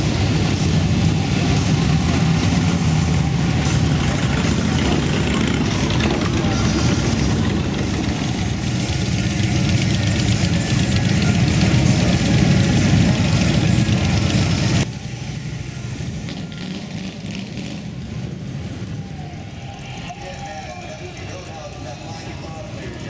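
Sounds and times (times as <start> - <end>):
motorcycle engine idling: 0.0 - 17.2.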